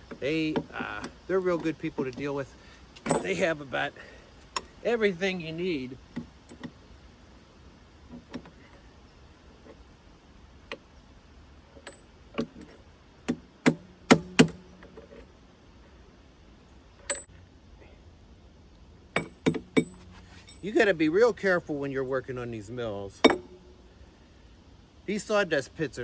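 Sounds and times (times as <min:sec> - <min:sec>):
hand tools clinking on steel: 0:00.0 - 0:05.2, 0:19.2 - 0:20.9.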